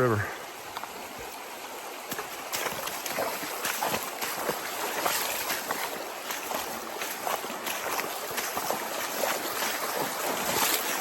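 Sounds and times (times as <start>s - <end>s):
river current rushing: 0.0s - 11.0s
water splashing from wading: 1.0s - 11.0s.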